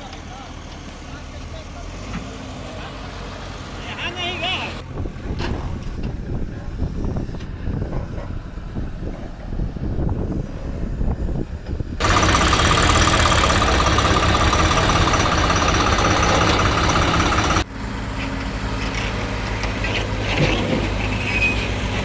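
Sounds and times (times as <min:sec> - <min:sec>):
heavy diesel machinery engine: 0:00.0 - 0:07.0, 0:10.4 - 0:22.0
engine idling: 0:12.0 - 0:17.7.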